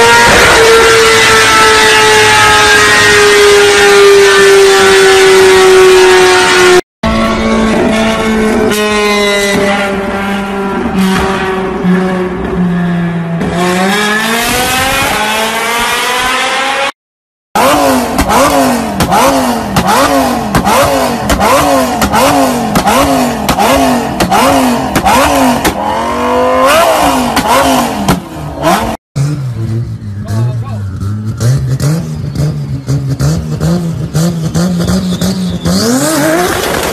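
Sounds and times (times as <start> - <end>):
car engine revving: 0.0 - 17.0, 17.6 - 36.9
exhaust cracks: 34.8 - 36.9.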